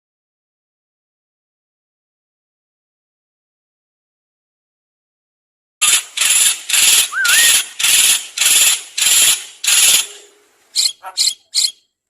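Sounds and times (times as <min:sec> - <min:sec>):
songbird harsh rasping call: 0:05.8 - 0:12.0
short wavering whistle: 0:07.1 - 0:07.6.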